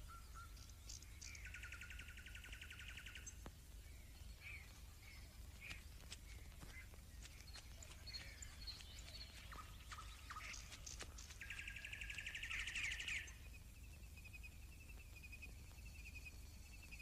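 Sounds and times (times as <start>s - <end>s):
birds chirping: 0.0s - 17.0s
bird trill: 6.8s - 13.5s.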